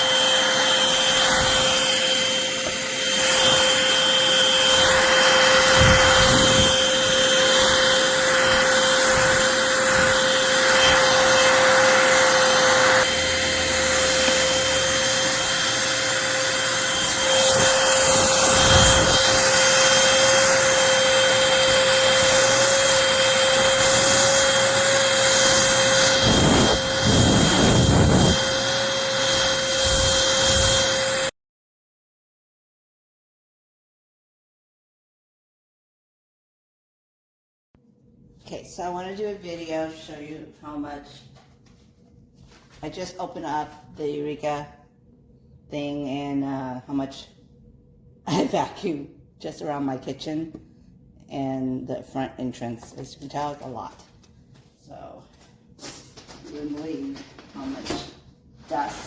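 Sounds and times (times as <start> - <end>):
stick vacuum motor whine: 0.0 - 31.3.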